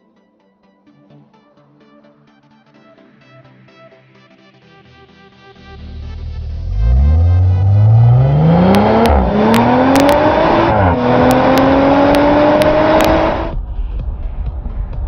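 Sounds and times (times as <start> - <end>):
car engine accelerating hard: 5.8 - 13.6.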